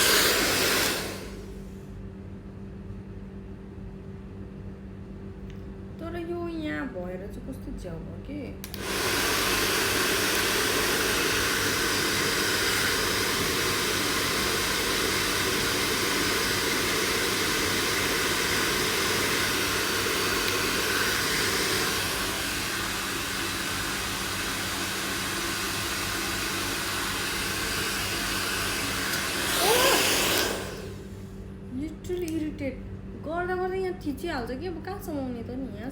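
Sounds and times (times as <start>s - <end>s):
hair dryer blowing: 0.0s - 1.8s, 8.6s - 31.4s.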